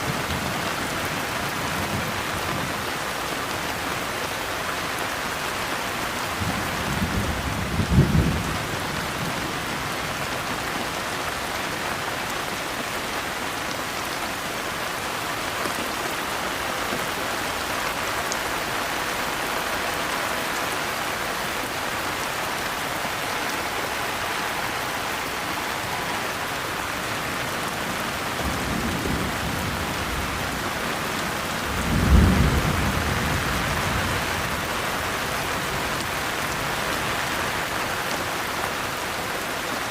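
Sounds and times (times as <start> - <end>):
heavy rainfall: 0.0 - 39.9
thunder rumbling: 6.4 - 9.5, 28.0 - 34.6.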